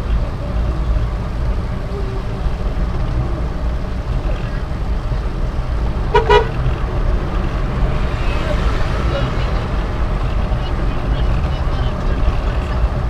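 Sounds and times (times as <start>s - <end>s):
car engine and road noise: 0.0s - 13.0s
car horn toots: 6.1s - 6.6s.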